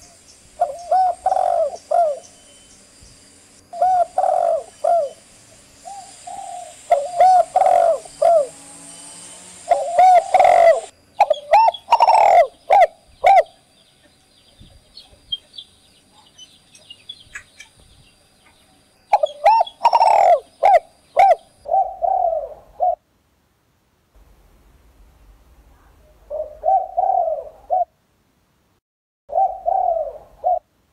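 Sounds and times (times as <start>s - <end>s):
dove cooing: 0.0s - 2.4s, 3.6s - 8.7s, 9.4s - 13.6s, 19.1s - 23.0s, 26.2s - 28.0s, 29.3s - 30.7s
faint small bird chirps: 0.0s - 21.8s.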